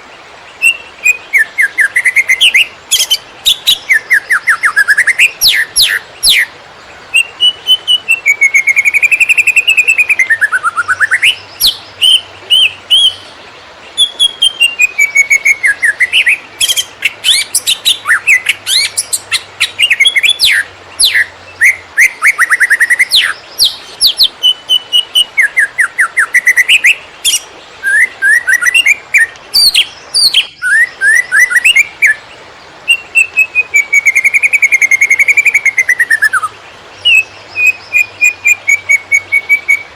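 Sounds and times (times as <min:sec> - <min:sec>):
bird singing whistles and trills: 0:00.6 - 0:06.5, 0:07.1 - 0:13.3, 0:14.0 - 0:32.3, 0:32.9 - 0:39.9.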